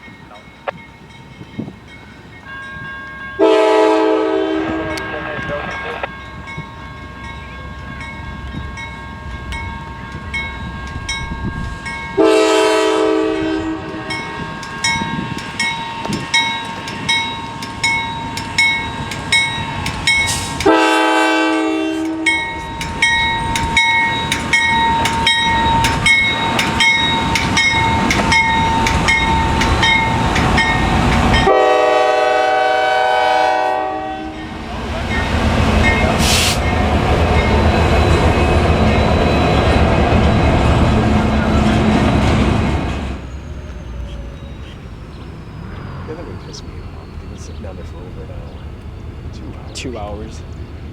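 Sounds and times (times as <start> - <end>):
locomotive air horn blasts: 3.4 - 6.1, 12.2 - 14.4, 20.3 - 22.6, 31.4 - 34.5
train wheels clacking: 4.6 - 32.0, 34.4 - 50.9.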